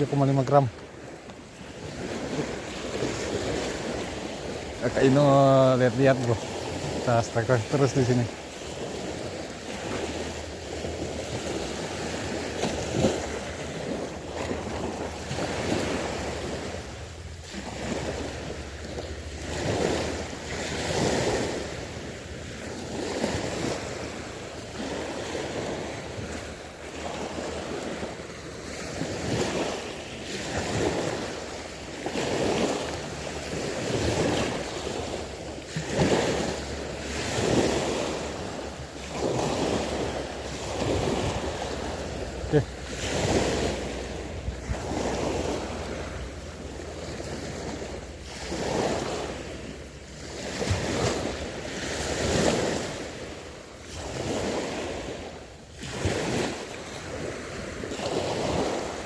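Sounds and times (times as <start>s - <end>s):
small waves washing in: 0.0s - 59.0s.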